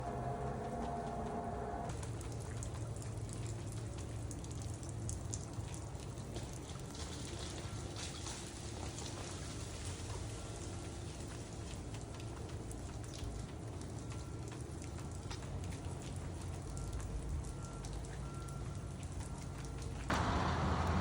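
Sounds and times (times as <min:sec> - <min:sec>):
steady low hum: 0:00.0 - 0:02.0
freezing rain ticking on surfaces: 0:00.0 - 0:21.0.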